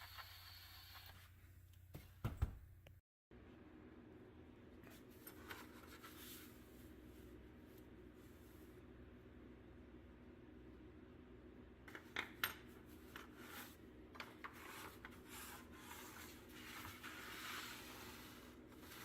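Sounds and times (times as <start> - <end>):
faint steady hum: 2.7 - 19.0
rubbing or scraping strokes: 14.5 - 19.0.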